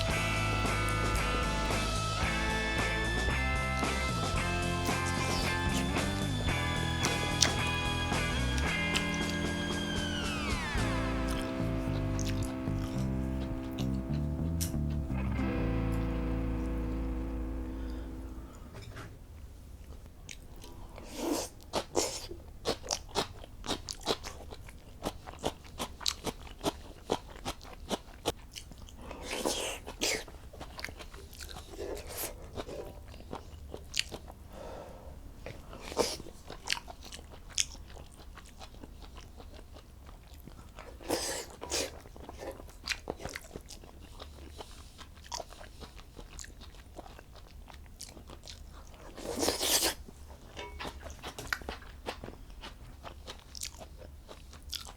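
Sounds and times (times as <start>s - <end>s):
steady low hum: 0.0s - 19.4s
person crunching and chewing: 3.8s - 16.3s, 20.3s - 34.4s, 35.4s - 54.9s.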